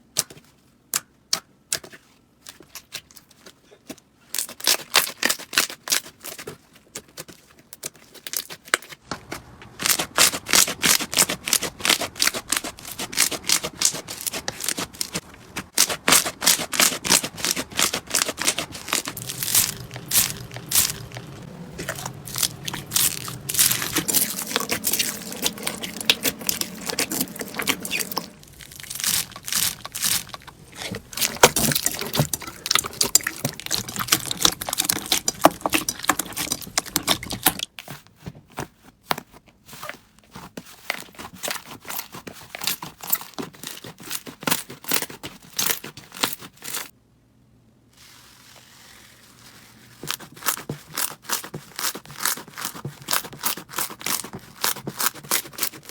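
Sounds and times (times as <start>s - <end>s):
slime crackling and crunching: 9.8s - 37.7s, 48.0s - 55.9s.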